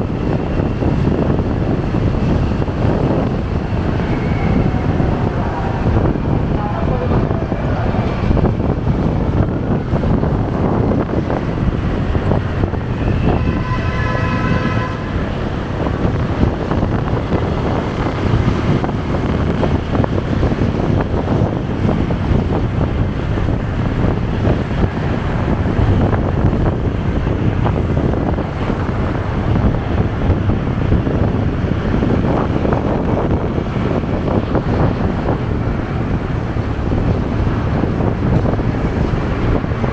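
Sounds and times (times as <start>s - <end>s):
road and traffic noise: 0.0s - 39.9s
wind buffeting microphone: 0.0s - 39.9s
vehicle horn: 12.6s - 17.9s.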